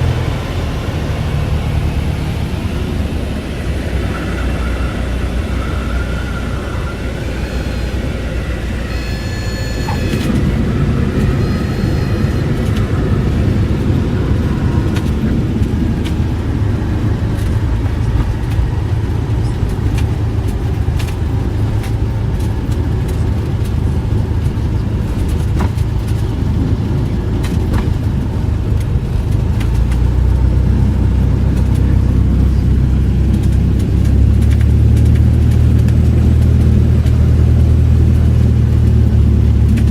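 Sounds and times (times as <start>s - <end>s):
piston aircraft engine running: 0.0s - 39.9s
short high tone: 4.1s - 13.5s.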